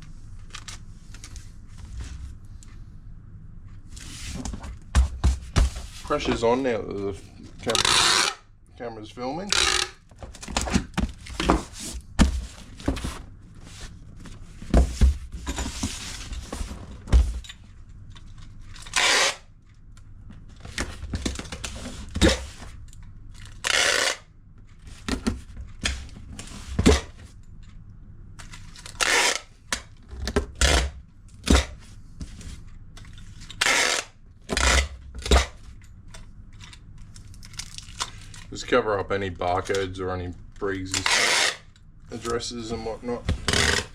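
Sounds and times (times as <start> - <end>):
packing tape rasping: 7.6 - 8.4, 9.5 - 10.5, 18.7 - 19.5, 23.4 - 24.3, 28.7 - 29.5, 33.5 - 35.6, 40.9 - 41.7, 43.4 - 43.9.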